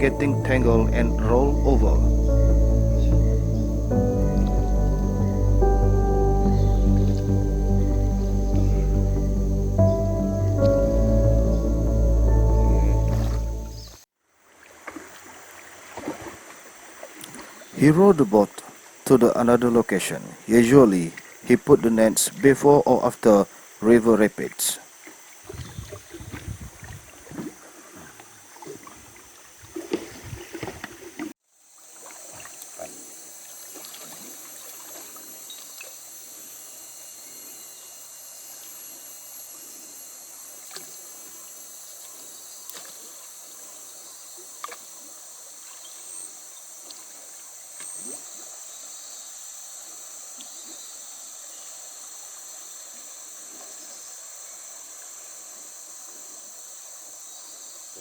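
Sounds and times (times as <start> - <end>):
high-pitched insect chorus: 0.0 - 14.0, 15.2 - 58.0
water splashing around a boat: 14.4 - 19.1, 24.8 - 31.3, 31.9 - 36.1.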